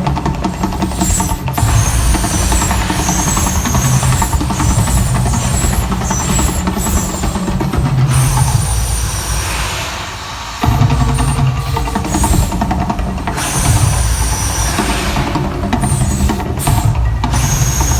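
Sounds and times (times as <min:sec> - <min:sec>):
music: 0:10.6 - 0:17.9.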